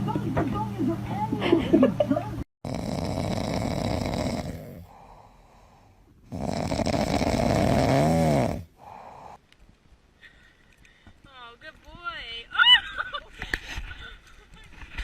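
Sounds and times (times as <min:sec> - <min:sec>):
person snoring: 0:02.6 - 0:09.4.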